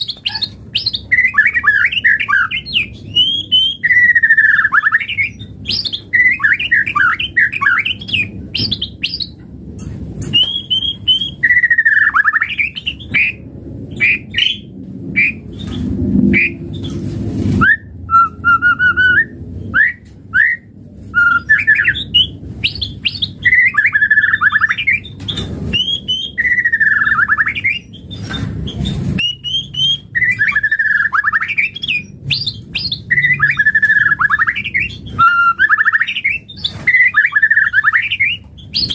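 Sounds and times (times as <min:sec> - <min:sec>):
songbird singing whistled phrases: 0:00.0 - 0:09.3, 0:10.3 - 0:15.8, 0:17.6 - 0:38.9
harsh bird chattering: 0:00.0 - 0:09.4.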